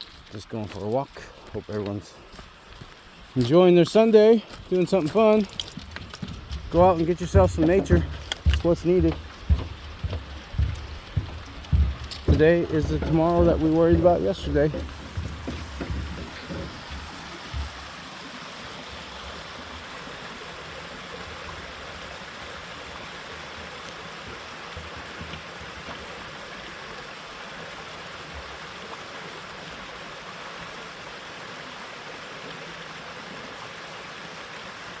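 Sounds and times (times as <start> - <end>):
river water flowing: 0.0 - 35.0
low thumps: 4.6 - 17.8.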